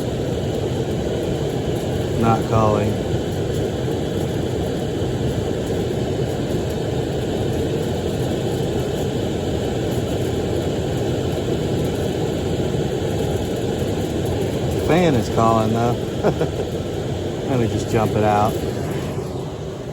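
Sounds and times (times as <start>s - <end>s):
furnace blower running: 0.0s - 19.9s.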